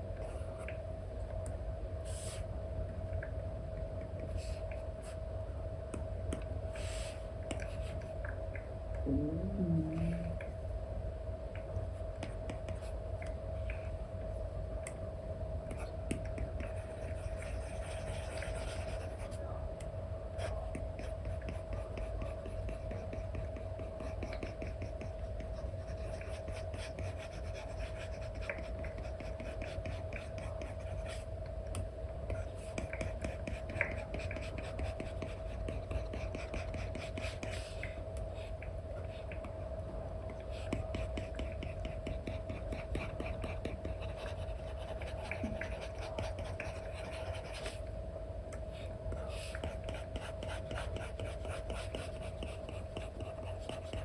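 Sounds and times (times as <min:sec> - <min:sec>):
steady hum: 0:00.0 - 0:54.0
stylus scratching and tapping on screen: 0:15.8 - 0:19.4, 0:20.5 - 0:31.2, 0:32.3 - 0:37.7, 0:40.6 - 0:47.8, 0:49.1 - 0:54.0.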